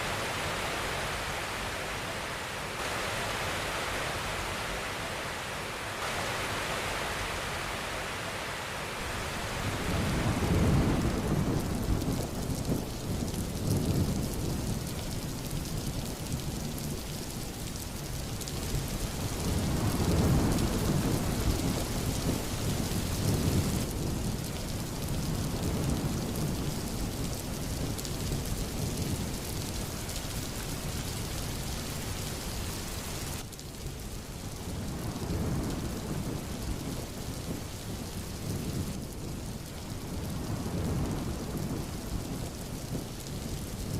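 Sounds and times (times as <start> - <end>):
thunder rumbling: 0.0 - 16.9, 18.7 - 30.0, 34.7 - 43.9
heavy rain: 0.0 - 43.9.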